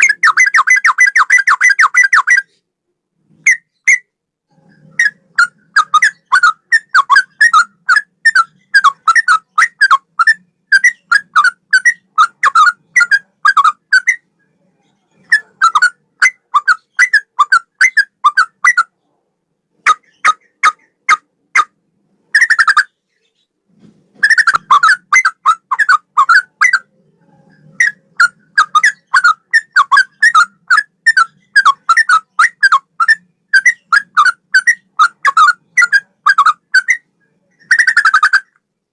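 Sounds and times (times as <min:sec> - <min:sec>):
bird singing whistled notes: 0:00.0 - 0:02.6, 0:04.8 - 0:14.6, 0:27.6 - 0:38.6.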